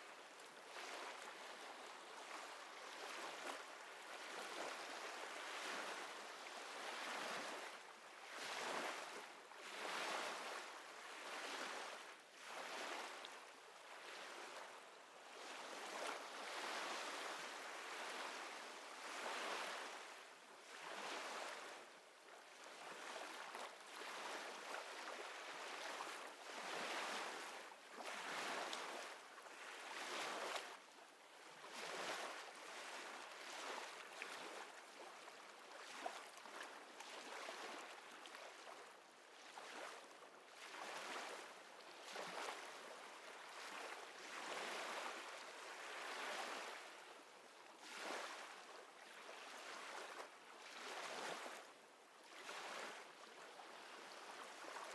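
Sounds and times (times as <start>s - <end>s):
small waves lapping: 0.1s - 54.9s.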